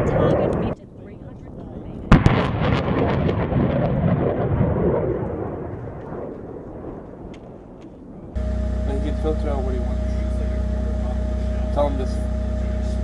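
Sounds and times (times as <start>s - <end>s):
deep rumbling roar: 2.1s - 7.3s, 8.4s - 13.0s
rocket launch blast: 2.1s - 7.3s.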